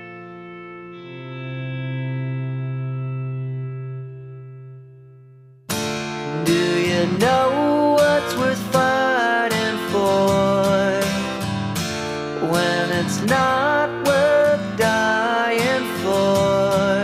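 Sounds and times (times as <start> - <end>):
guitar-led song: 0.0 - 17.0.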